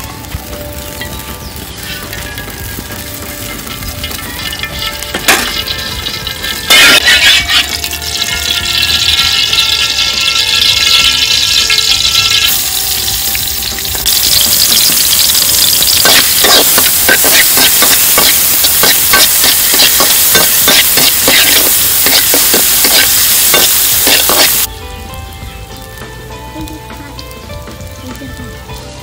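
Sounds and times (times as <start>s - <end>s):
food sizzling in hot oil: 0.0s - 29.0s
metal ladle scraping a wok: 3.3s - 24.7s.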